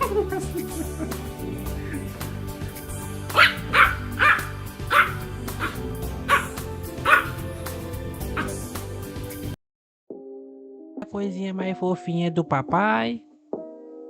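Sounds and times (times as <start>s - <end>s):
background music: 0.0s - 14.0s
puppy barking: 3.3s - 7.5s, 8.3s - 8.7s.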